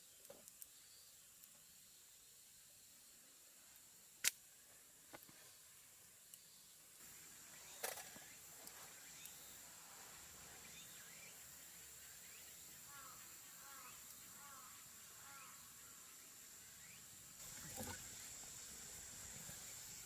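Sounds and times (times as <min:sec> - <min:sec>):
faint high-pitched hiss: 0:00.0 - 0:20.0.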